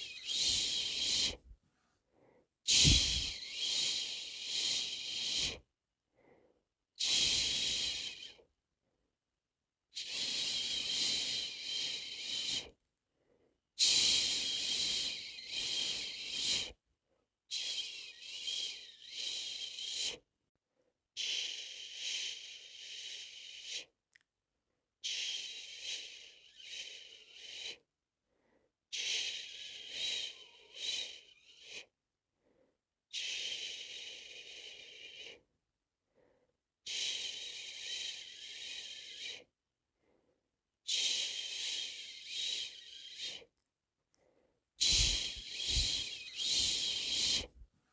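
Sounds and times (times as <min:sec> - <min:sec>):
person shushing: 0:02.7 - 0:03.4, 0:44.8 - 0:47.5.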